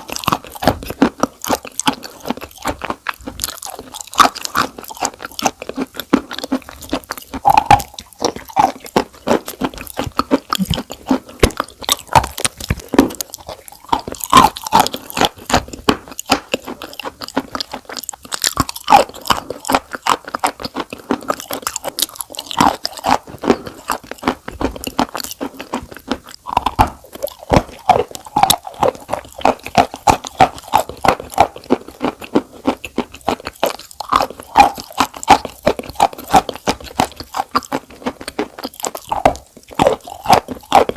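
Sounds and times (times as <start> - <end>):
crunching and chewing: 0.0 - 40.9.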